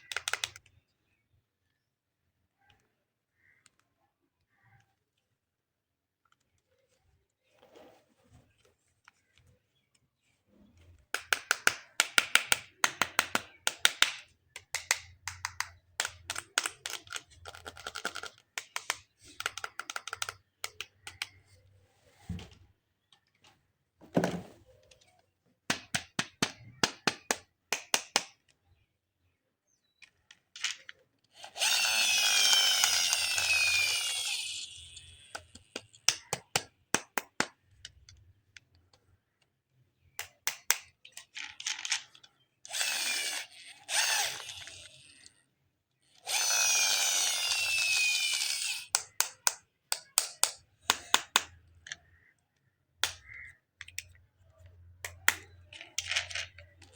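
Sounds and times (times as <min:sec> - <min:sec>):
plastic clicks and taps: 0:00.0 - 0:00.8, 0:10.9 - 0:21.4, 0:24.2 - 0:28.6, 0:40.1 - 0:42.8, 0:48.9 - 0:56.9
toy buzzing whir: 0:31.3 - 0:36.1, 0:42.6 - 0:45.4, 0:46.0 - 0:49.5.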